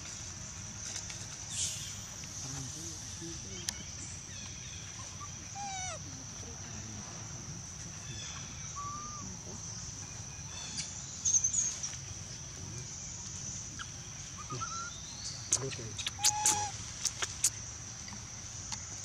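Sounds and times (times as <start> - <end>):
bird calls: 3.5 - 6.0, 8.0 - 12.0, 12.7 - 19.0
high bird chirps: 13.8 - 17.5.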